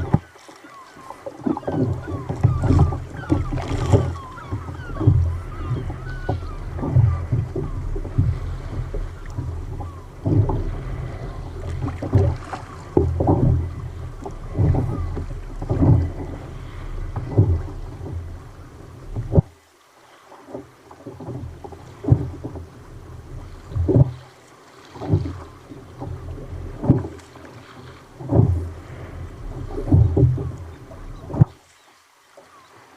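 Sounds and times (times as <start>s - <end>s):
water splashing against kayak: 0.0s - 32.9s
wind buffeting microphone: 1.0s - 19.5s, 28.1s - 31.6s.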